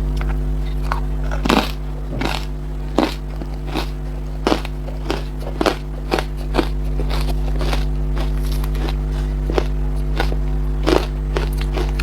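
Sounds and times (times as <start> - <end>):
steady low hum: 0.0 - 12.0
ice crunching between teeth: 0.2 - 12.0.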